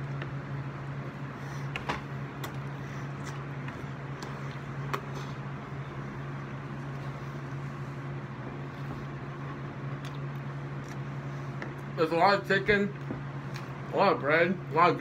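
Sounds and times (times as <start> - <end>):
steady low hum: 0.0 - 15.0
person chewing food: 1.6 - 5.7, 8.4 - 11.9.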